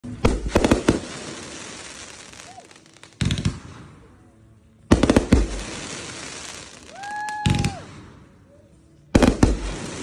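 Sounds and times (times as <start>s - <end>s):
fireworks bangs: 0.0s - 3.8s, 4.9s - 8.0s, 9.2s - 10.0s.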